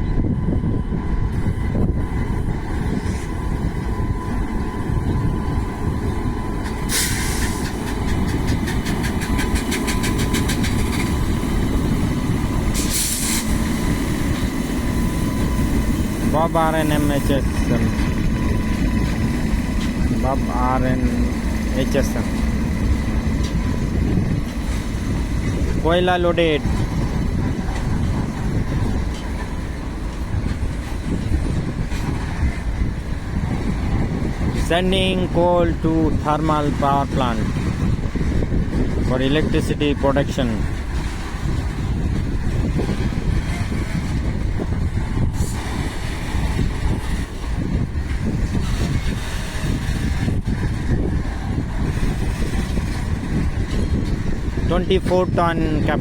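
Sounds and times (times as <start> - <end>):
goods train rumbling past: 0.0 - 56.0
rhythmic clicking of train wheels: 1.5 - 39.5, 40.2 - 56.0
hiss: 6.9 - 7.8, 12.7 - 13.6.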